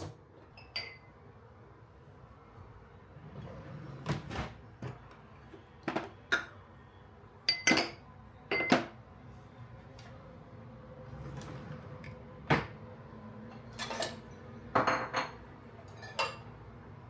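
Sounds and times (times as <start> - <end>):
dishes and utensils clinking: 0.5 - 1.1, 7.5 - 9.0, 13.5 - 16.6.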